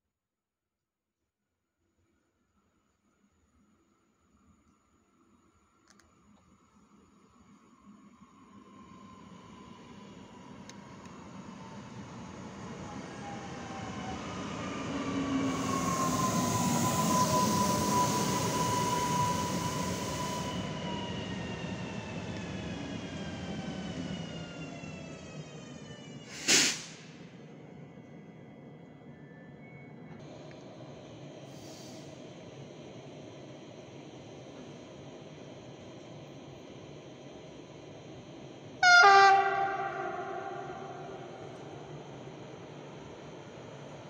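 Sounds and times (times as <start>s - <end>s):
small click: 5.8s - 6.5s
distant electric train hum: 5.9s - 44.0s
short loud hiss: 26.3s - 27.2s.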